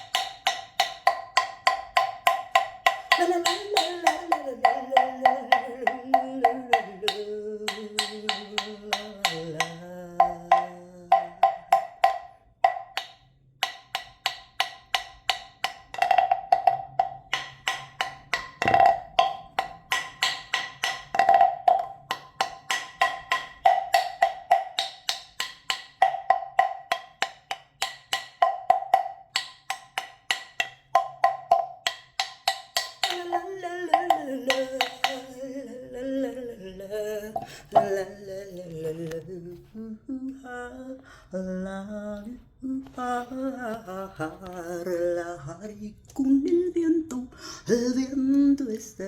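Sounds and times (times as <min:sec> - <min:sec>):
wood block taps with ringing tone: 0:00.0 - 0:35.4
woman humming a slow tune: 0:03.2 - 0:11.4, 0:33.1 - 0:49.0.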